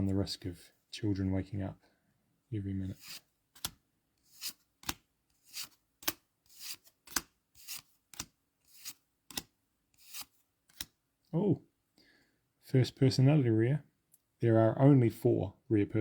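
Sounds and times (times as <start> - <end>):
cards sliding off a stack: 3.0 - 11.0.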